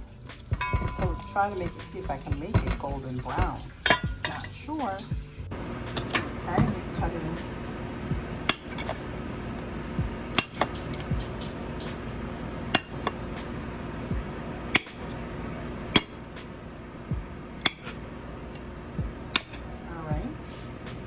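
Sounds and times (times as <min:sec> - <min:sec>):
utensil clinking against pan: 0:00.0 - 0:05.3.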